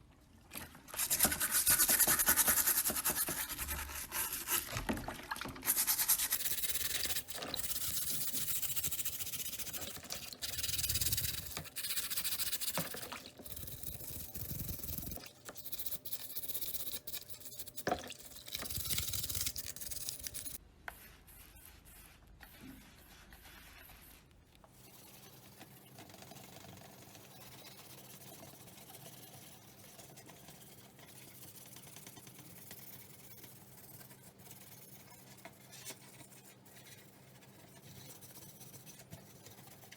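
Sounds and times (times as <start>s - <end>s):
hand scraping model part: 0.9s - 4.8s, 5.6s - 20.6s.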